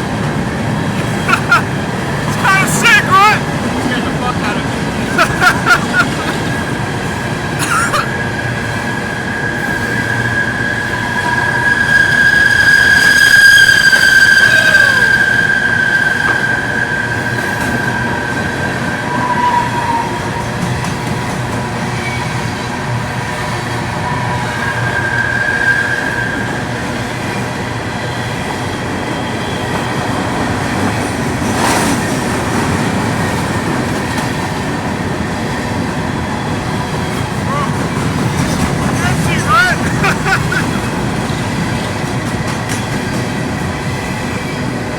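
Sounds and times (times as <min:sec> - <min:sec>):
train rumbling on rails: 0:00.0 - 0:44.9
train wheels squealing: 0:05.1 - 0:32.3.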